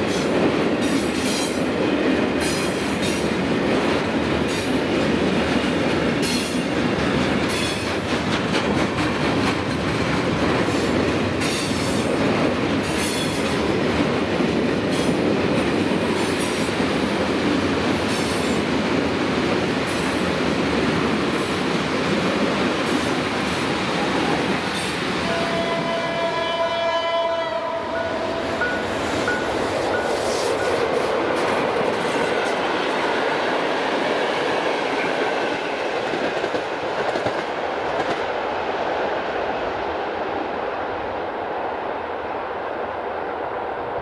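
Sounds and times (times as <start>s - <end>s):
train wheels clattering over joints: 2.4s - 12.1s
locomotive horn: 25.2s - 29.2s
crossing warning signal beeping: 27.8s - 30.9s.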